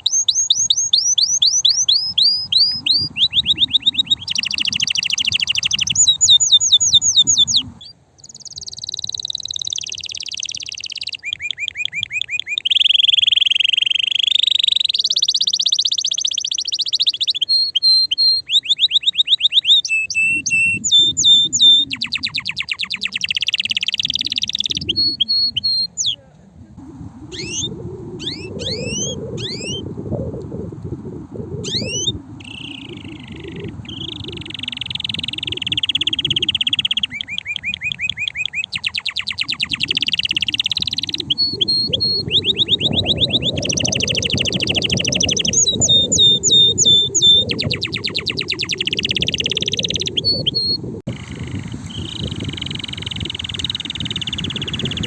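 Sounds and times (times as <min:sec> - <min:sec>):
canary singing trills: 0:00.0 - 0:26.2, 0:27.3 - 0:29.9, 0:31.6 - 0:55.0
low rumble: 0:26.5 - 0:35.6.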